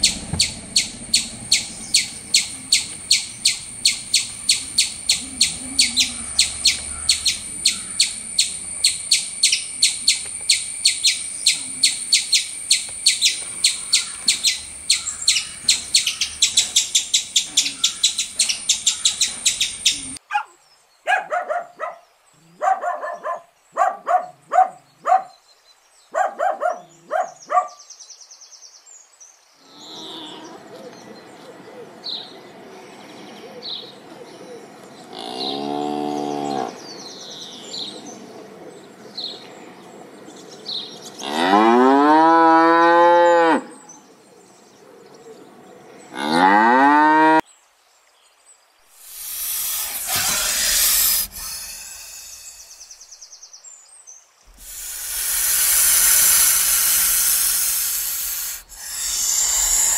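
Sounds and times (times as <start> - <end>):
birds chirping: 0.0 - 20.3, 29.6 - 47.1, 48.8 - 59.9
short lower-pitched bird calls: 0.0 - 20.5, 48.9 - 53.4, 54.5 - 59.9.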